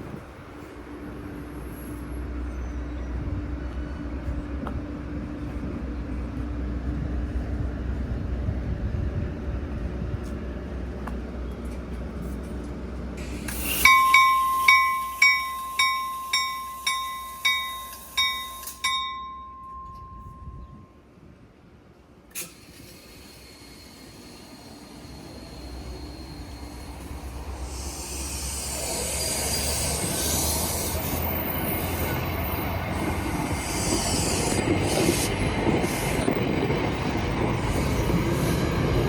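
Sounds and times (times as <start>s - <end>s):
train rumbling: 0.0s - 39.0s
railway bell ringing: 13.5s - 21.2s.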